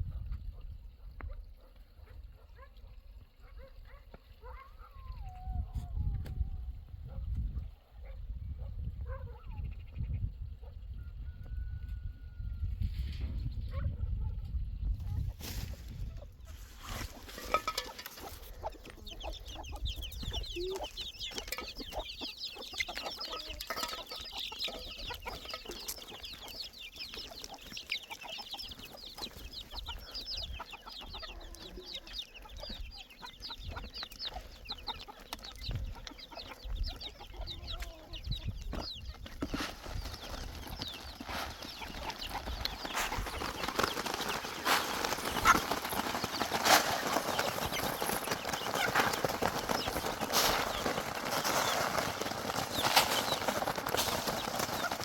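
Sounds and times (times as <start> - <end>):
chickens clucking: 13.4 - 55.0.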